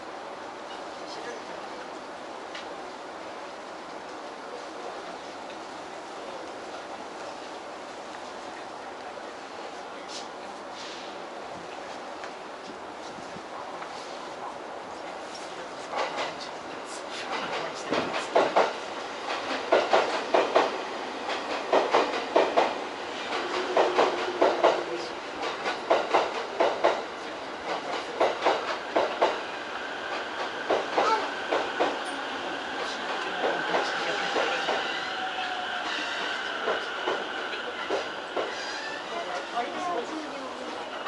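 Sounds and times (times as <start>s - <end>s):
train steady whine: 0.0s - 41.0s
train wheels clacking over rail joints: 17.2s - 29.4s, 35.8s - 38.8s.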